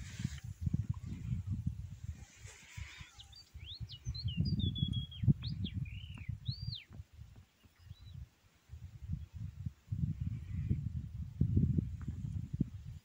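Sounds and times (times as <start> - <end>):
microphone buffeting rumble: 0.0 - 13.0
songbird whistling: 3.1 - 6.9.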